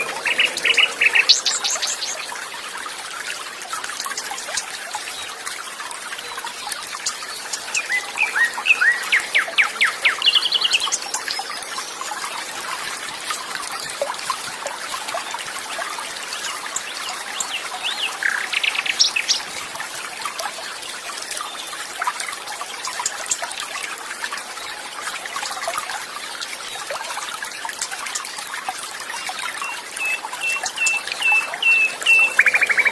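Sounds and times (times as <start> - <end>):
birds singing: 0.0 - 2.8, 6.2 - 12.9, 15.1 - 21.8, 29.1 - 32.9
stream trickling: 0.0 - 32.9
whistled bird notes: 29.6 - 32.9.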